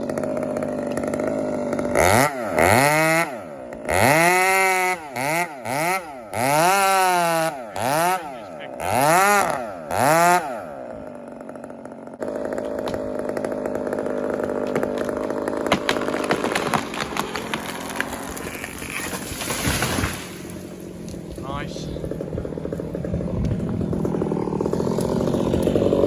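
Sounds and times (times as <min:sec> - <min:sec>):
chainsaw cutting wood: 0:00.0 - 0:26.0
wood cracking and snapping: 0:12.4 - 0:21.4, 0:22.0 - 0:26.0.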